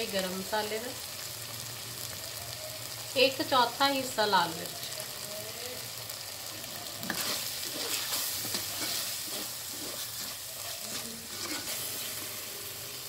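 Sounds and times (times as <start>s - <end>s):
masala sizzling in clay pot: 0.0s - 13.0s
wooden spatula scraping pot: 7.1s - 12.3s.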